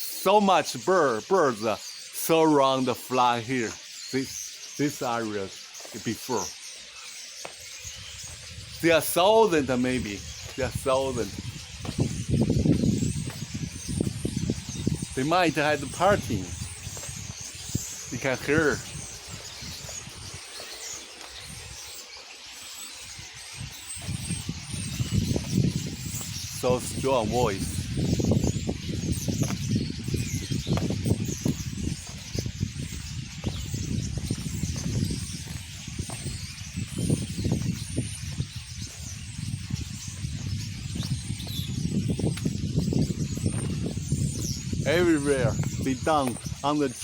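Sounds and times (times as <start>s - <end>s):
flock of birds chirping: 0.0s - 47.0s.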